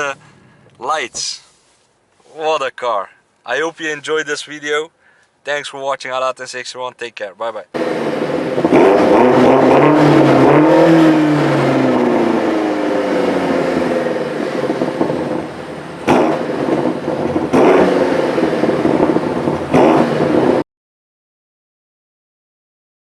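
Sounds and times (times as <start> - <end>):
car engine running hard: 7.8 - 20.6.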